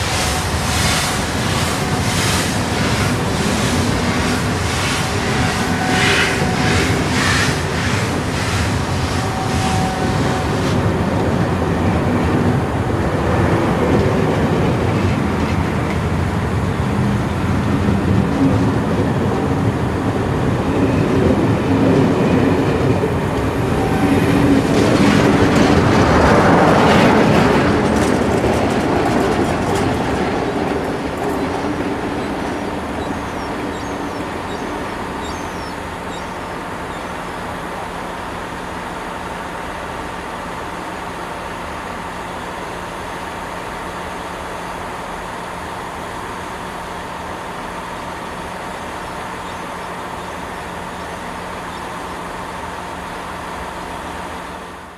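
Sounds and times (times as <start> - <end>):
wheels clattering over rail joints: 0.0 - 42.2
steam train pulling out: 0.0 - 54.9.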